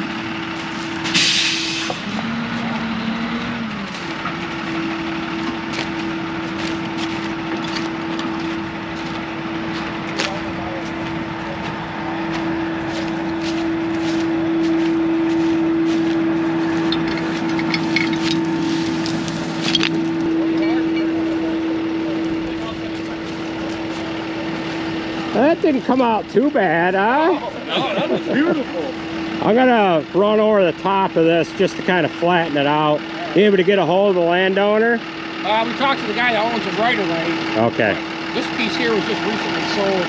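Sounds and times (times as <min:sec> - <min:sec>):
heavy diesel engine running: 0:00.0 - 0:40.0
burst of hiss: 0:01.2 - 0:02.0.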